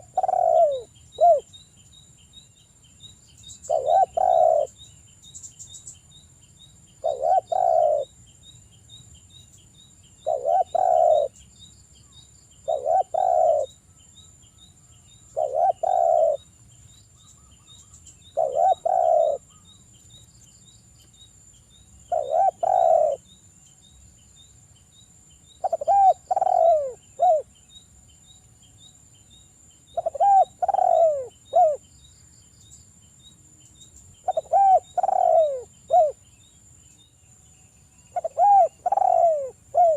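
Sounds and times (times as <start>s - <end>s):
dove cooing: 0.0s - 1.5s, 3.7s - 4.8s, 7.0s - 8.2s, 10.2s - 11.4s, 12.6s - 13.8s, 15.3s - 16.4s, 18.3s - 19.6s, 22.1s - 23.2s, 25.6s - 27.5s, 29.9s - 31.8s, 34.2s - 36.2s, 38.1s - 39.9s.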